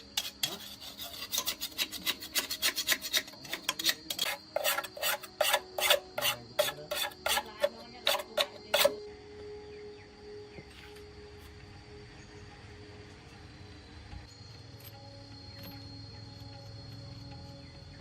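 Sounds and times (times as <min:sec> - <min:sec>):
hand file rasping on metal: 0:00.0 - 0:09.0.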